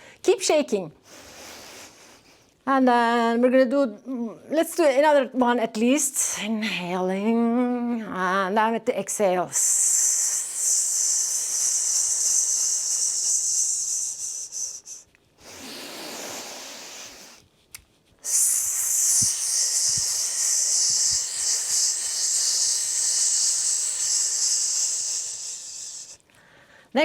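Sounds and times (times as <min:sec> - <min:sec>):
person hissing through teeth: 0:09.5 - 0:17.5, 0:18.2 - 0:26.2
person breathing in: 0:10.0 - 0:17.4, 0:18.2 - 0:26.9.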